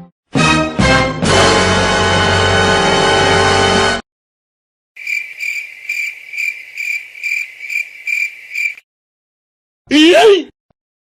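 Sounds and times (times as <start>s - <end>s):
music: 0.0s - 4.0s
crickets chirping: 5.0s - 8.8s.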